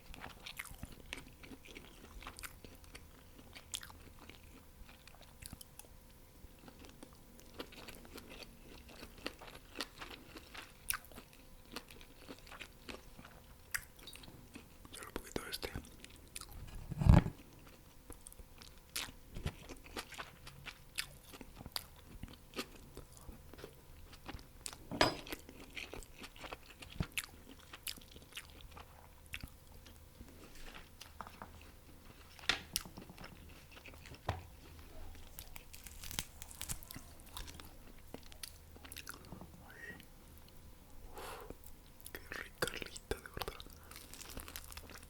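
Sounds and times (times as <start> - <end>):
wet chewing: 16.0 - 31.4, 32.0 - 40.5, 41.6 - 45.0
crunching bites of fried chicken: 35.4 - 39.2, 43.4 - 45.0.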